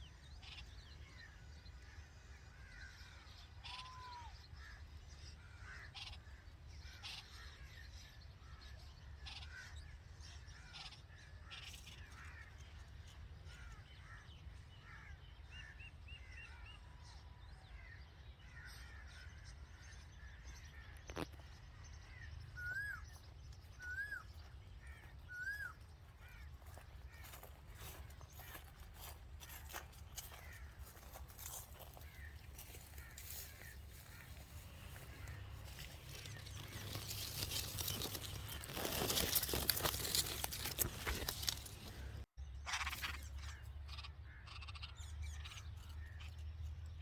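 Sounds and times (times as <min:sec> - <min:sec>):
loud arched bird calls: 0:00.0 - 0:07.9, 0:18.5 - 0:46.4
bulbuls chirping: 0:21.0 - 0:46.6.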